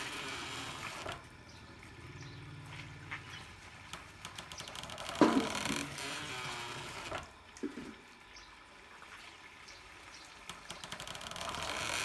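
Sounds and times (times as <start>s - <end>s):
short sharp knocks: 5.2s - 5.8s.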